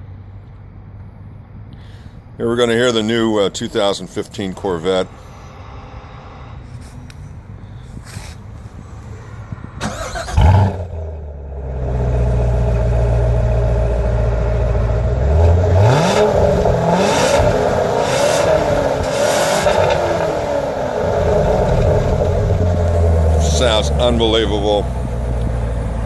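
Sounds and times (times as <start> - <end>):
car engine revving and idling: 9.0 - 26.0.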